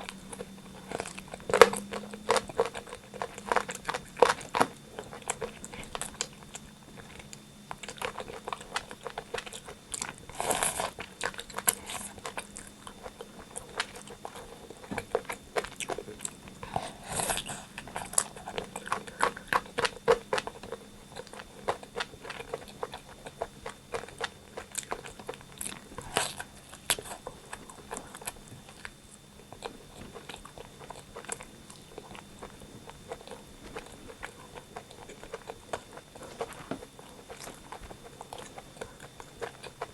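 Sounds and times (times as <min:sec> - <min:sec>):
wet chewing and smacking: 0:00.0 - 0:39.9.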